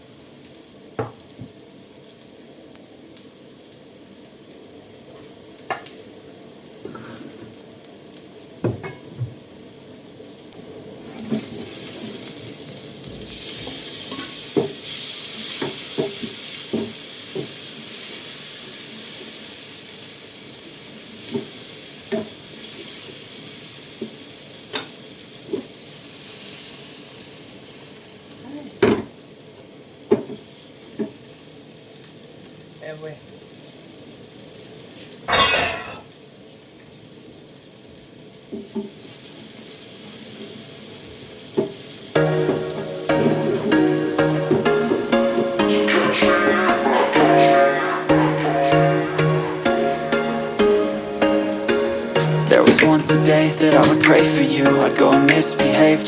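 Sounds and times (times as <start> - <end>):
food sizzling in a hot pan: 0.0 - 43.7.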